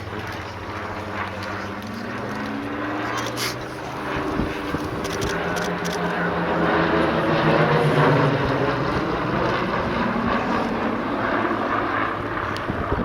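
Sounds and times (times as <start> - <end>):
propeller plane flying past: 0.0 - 13.0.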